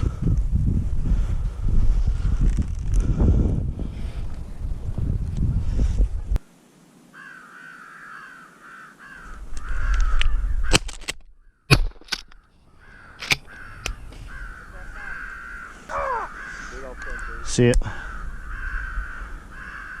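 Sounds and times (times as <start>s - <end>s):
wind buffeting microphone: 0.0s - 6.5s, 9.3s - 10.8s, 12.8s - 20.0s
crows cawing: 7.1s - 10.8s, 11.4s - 20.0s.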